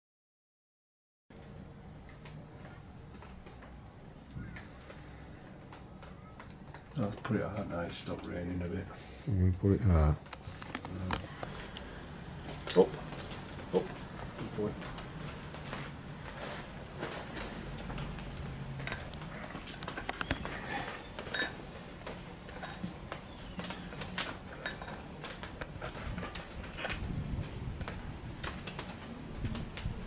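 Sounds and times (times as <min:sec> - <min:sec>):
light metallic jingles: 0:18.8 - 0:21.7, 0:22.4 - 0:27.0.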